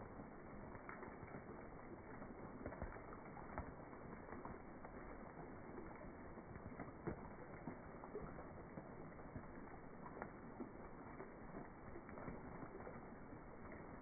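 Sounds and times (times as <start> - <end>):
rain falling on a pond: 0.0 - 14.0.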